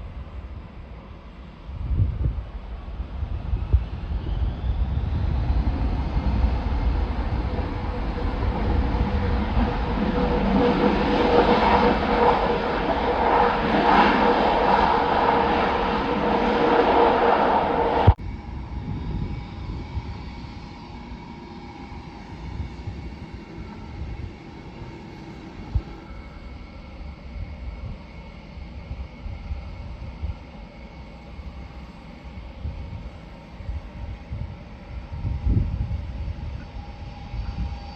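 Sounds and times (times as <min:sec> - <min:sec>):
wind buffeting microphone: 0:00.0 - 0:30.6, 0:32.2 - 0:37.9
jet engines whining: 0:00.1 - 0:37.9
low rumble: 0:03.0 - 0:20.6.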